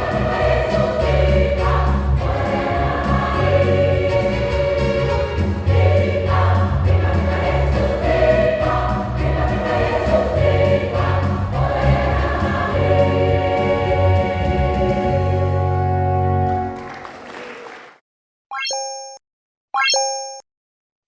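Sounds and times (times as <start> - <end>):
choir singing gospel: 0.0 - 16.8.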